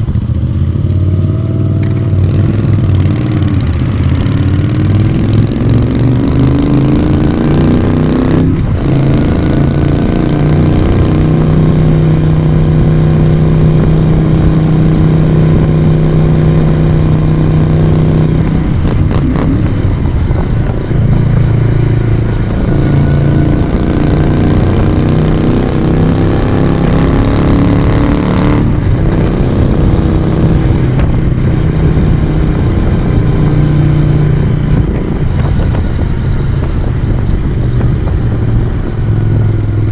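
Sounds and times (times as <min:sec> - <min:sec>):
motorcycle exhaust while riding: 0:00.0 - 0:39.9.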